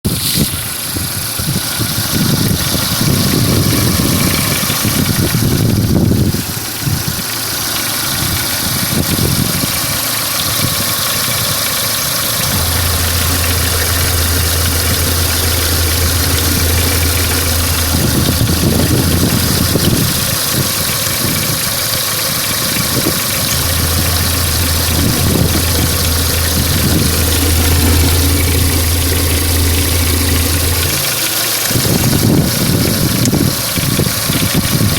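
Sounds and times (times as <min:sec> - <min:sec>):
car engine idling with a knock: 0:00.1 - 0:34.9
steady low hum: 0:12.4 - 0:20.5, 0:23.3 - 0:32.2.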